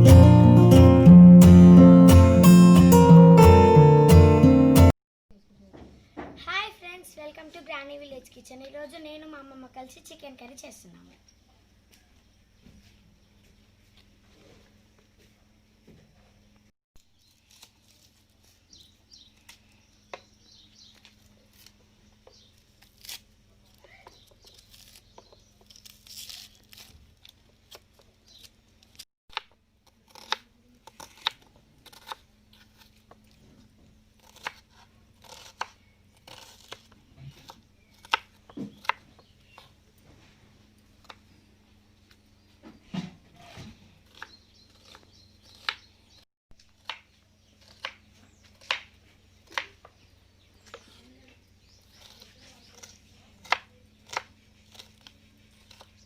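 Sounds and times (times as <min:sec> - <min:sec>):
tearing crunching handling noises: 0:17.1 - 0:19.8, 0:20.8 - 0:29.0, 0:29.8 - 0:40.2, 0:50.6 - 0:56.0.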